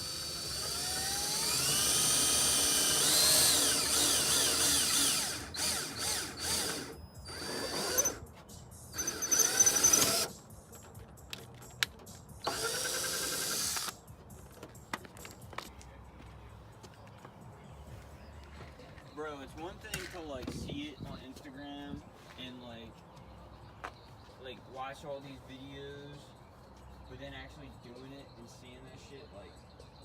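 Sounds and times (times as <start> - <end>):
power drill whining: 0.0 - 8.2, 8.9 - 10.3, 12.4 - 13.9.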